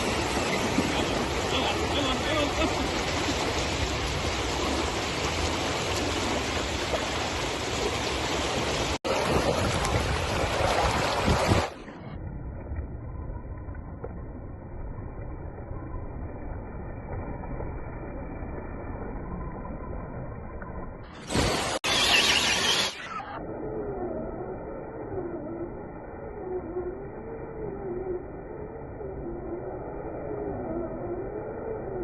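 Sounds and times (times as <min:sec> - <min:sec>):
water rushing at a weir: 0:00.0 - 0:12.2, 0:21.1 - 0:23.4.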